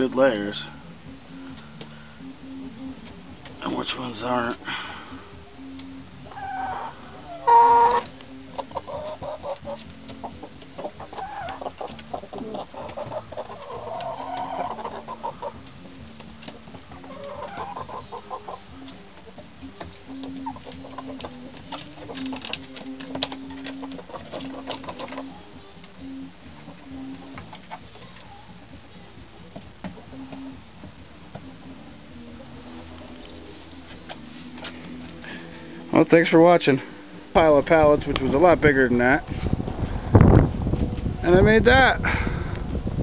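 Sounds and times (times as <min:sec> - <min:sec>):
hens clucking: 0:05.8 - 0:35.9
hen squawking loudly: 0:06.3 - 0:08.1.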